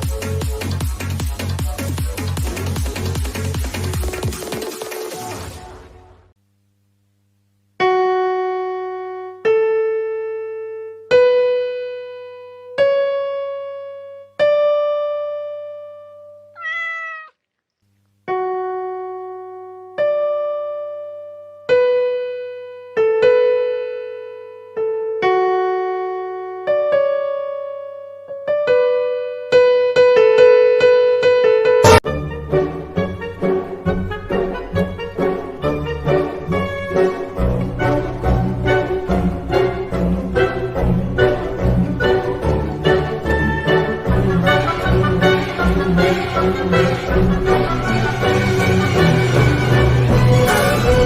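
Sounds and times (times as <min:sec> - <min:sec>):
piano-like keyboard melody: 0:07.8 - 0:16.5, 0:18.3 - 0:51.0
cat meowing: 0:16.6 - 0:17.4.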